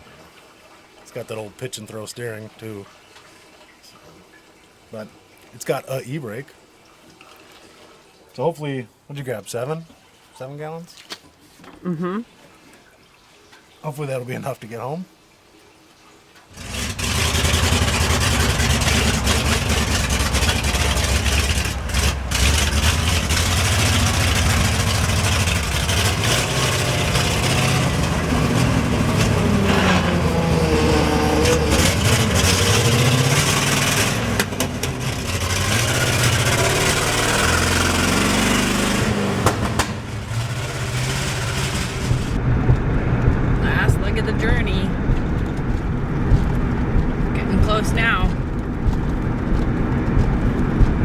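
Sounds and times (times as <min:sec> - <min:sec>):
truck engine revving: 0:16.5 - 0:51.0.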